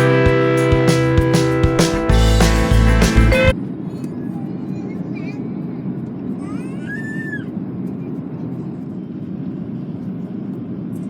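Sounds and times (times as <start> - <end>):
airplane cabin engine rumble: 3.8 - 11.0.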